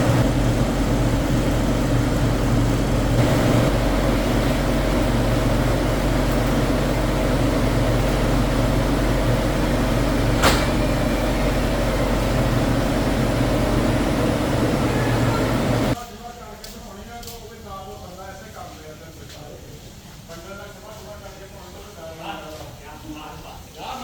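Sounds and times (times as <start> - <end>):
factory machinery humming: 0.0 - 16.0.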